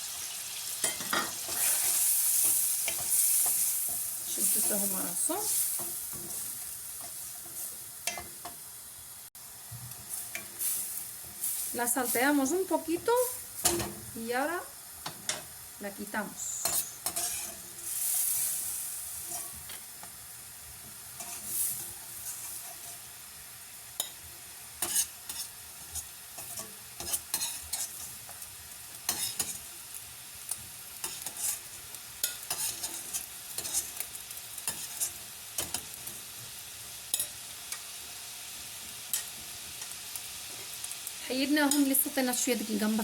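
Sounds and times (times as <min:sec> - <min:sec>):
oil sizzling in a frying pan: 0:00.0 - 0:43.0.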